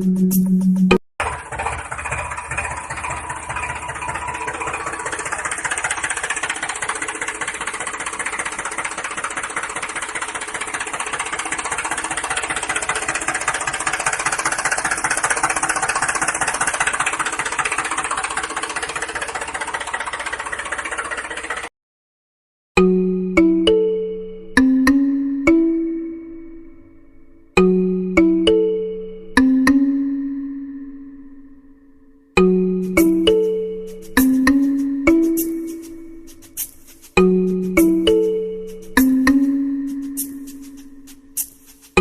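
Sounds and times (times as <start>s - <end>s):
small motor with gear rattle: 1.2s - 21.7s, 33.9s - 39.1s, 39.9s - 42.0s.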